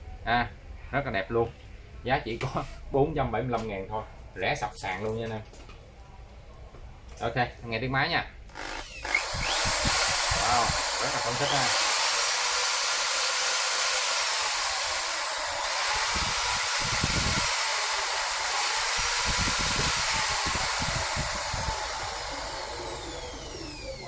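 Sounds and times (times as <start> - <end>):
electric drill motor whine: 8.5 - 24.0.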